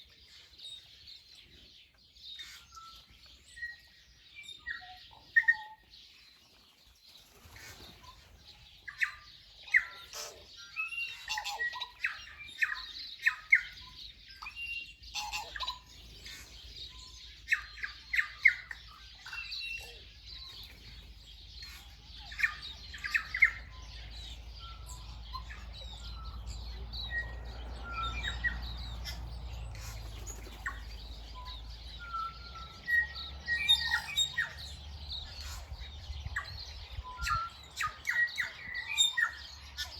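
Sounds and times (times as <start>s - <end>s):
wild birds singing and calling: 0.0s - 39.9s.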